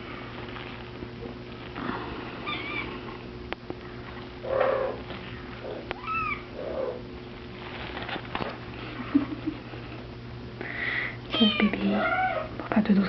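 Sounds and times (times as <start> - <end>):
kitten mewing: 2.4 - 3.2, 4.4 - 7.0.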